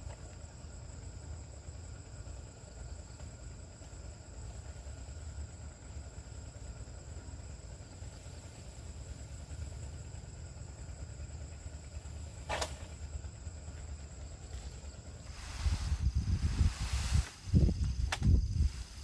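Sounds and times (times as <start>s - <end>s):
insects droning: 0.0s - 19.0s
low rumble: 11.6s - 19.0s.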